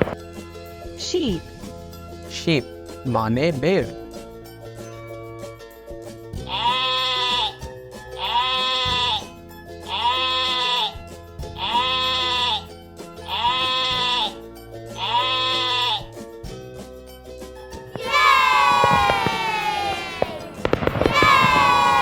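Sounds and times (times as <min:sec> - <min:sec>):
background music: 0:00.0 - 0:22.0
sheep bleating: 0:06.5 - 0:07.6, 0:08.2 - 0:11.0, 0:11.6 - 0:14.4, 0:15.0 - 0:16.2, 0:18.0 - 0:22.0.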